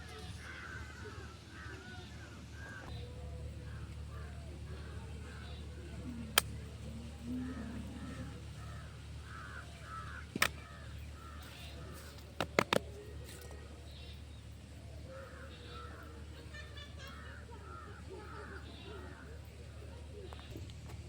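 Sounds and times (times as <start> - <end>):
bird harsh calls: 7.0 - 12.3, 15.1 - 19.4.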